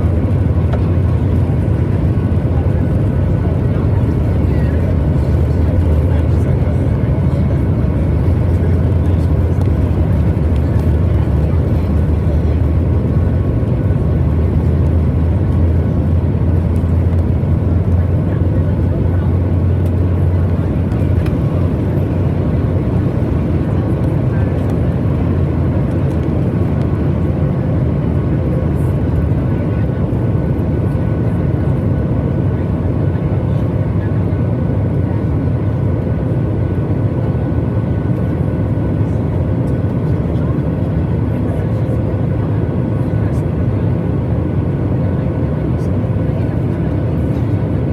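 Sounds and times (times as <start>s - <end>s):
airliner cabin engine drone: 0.0s - 47.9s.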